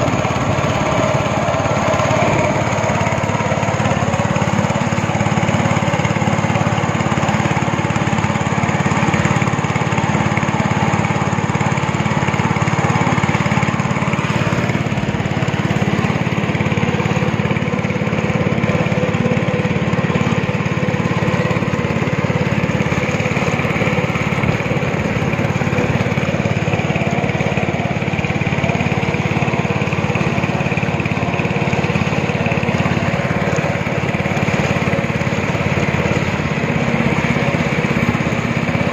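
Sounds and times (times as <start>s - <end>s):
speedboat engine running: 0.0s - 38.9s.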